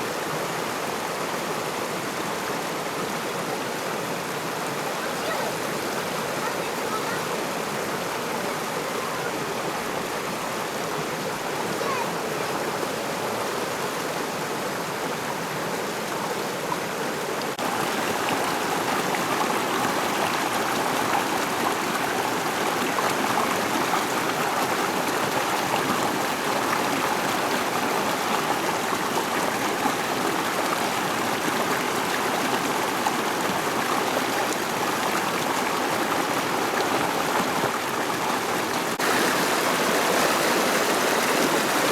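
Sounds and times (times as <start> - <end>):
rushing river water: 0.0 - 41.9.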